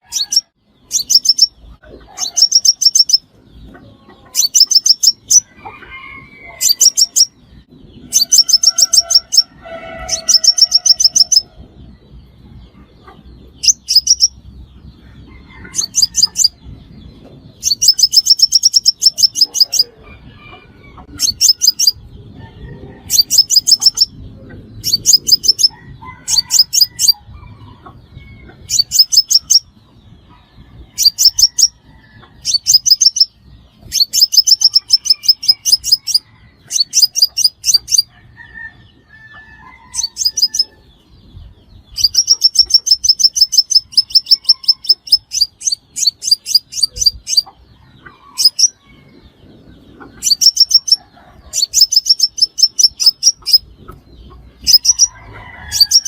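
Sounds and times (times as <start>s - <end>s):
sunbird chipping calls: 0.0s - 5.5s, 6.5s - 7.4s, 17.6s - 20.1s, 21.0s - 22.1s, 23.0s - 27.2s, 28.6s - 29.8s, 32.4s - 38.1s, 41.9s - 47.6s, 49.8s - 56.0s.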